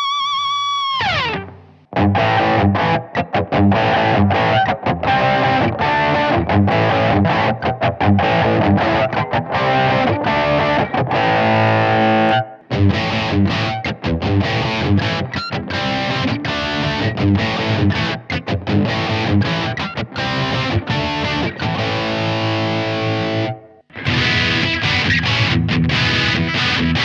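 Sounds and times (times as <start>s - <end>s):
distorted electric guitar riff: 0.0s - 27.0s.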